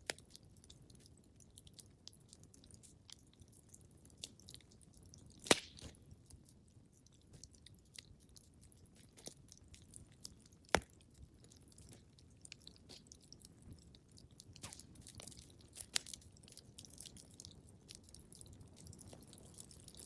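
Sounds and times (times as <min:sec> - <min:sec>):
wood fire crackling: 0:00.0 - 0:20.0
sharp fire pops: 0:05.4 - 0:06.0.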